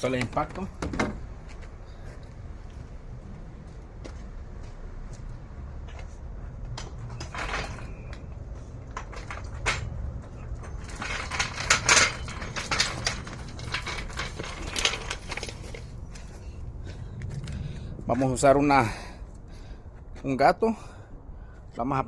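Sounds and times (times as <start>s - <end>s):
metal tools clinking: 7.0s - 8.3s, 9.0s - 16.0s.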